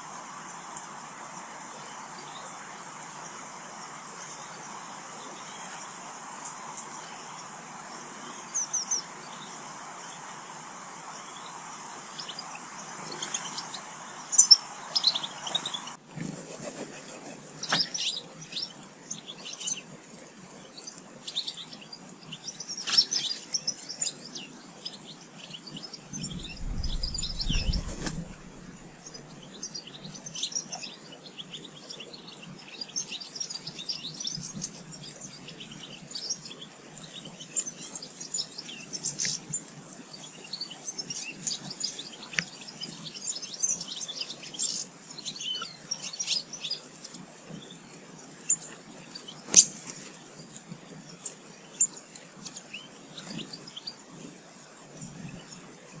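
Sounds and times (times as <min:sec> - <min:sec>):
songbirds chirping: 0:00.0 - 0:56.0
low rumble: 0:26.2 - 0:29.1.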